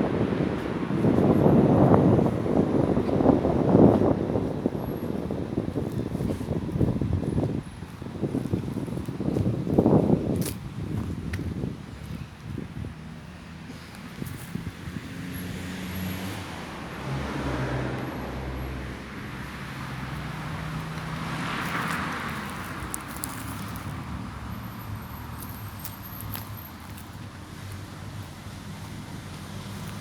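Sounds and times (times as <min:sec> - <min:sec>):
cars driving past: 0:13.0 - 0:30.0.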